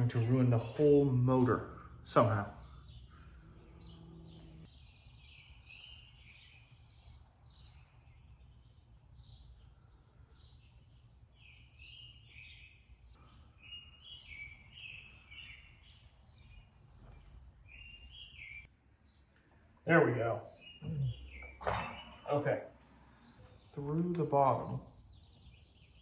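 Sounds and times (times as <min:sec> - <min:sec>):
low steady hum: 0:00.0 - 0:04.7
birds chirping and trilling: 0:00.0 - 0:19.3, 0:19.9 - 0:26.0.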